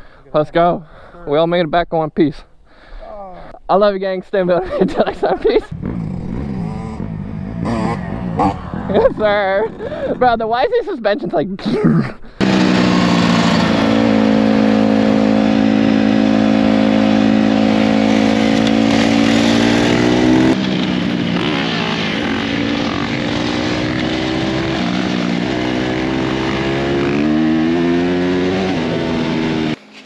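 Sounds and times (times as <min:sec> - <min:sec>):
dirt bike engine running: 0:05.7 - 0:10.3, 0:12.4 - 0:29.8.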